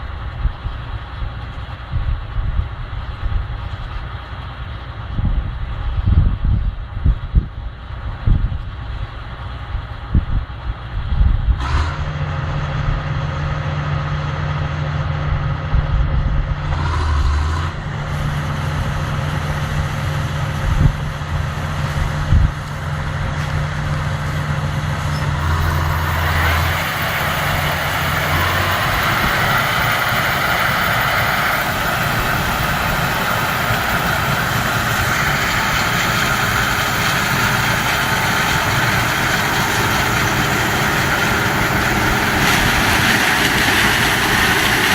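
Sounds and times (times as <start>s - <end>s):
combine engine drone: 0.0s - 44.9s
rushing noise: 16.4s - 44.9s.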